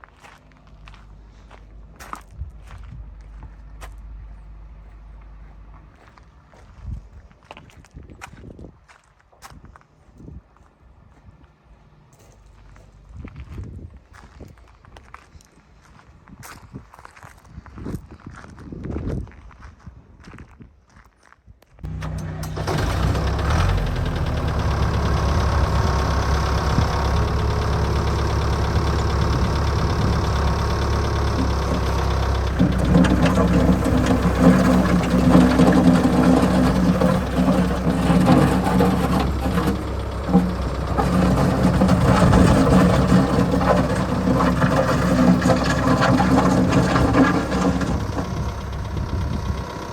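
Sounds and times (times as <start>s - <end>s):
diesel engine running: 21.9s - 49.9s.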